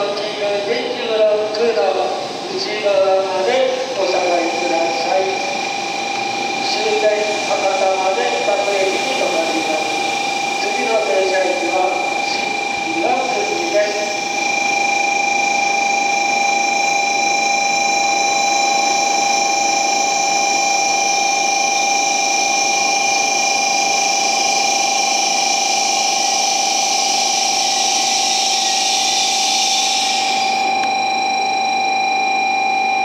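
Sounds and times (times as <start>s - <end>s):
electrical whine: 0.0s - 33.0s
hiss: 27.1s - 30.5s.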